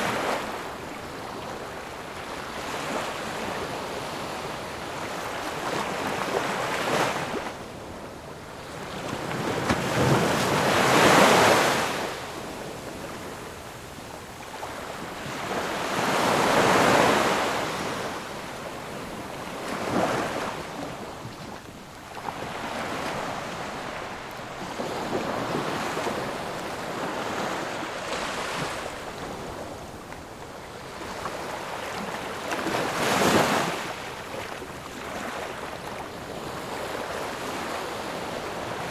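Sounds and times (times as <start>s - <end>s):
ocean waves breaking: 8.6s - 13.3s, 14.6s - 30.0s.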